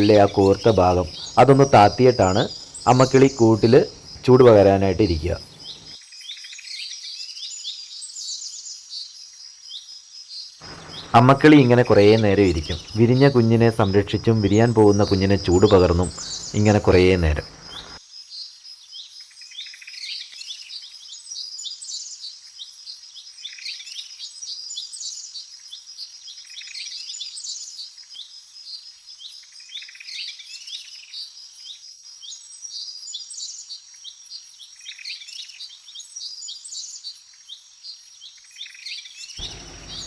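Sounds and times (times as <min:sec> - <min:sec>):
birds chirping and whistling: 0:00.0 - 0:05.9, 0:10.6 - 0:18.0, 0:39.4 - 0:40.0.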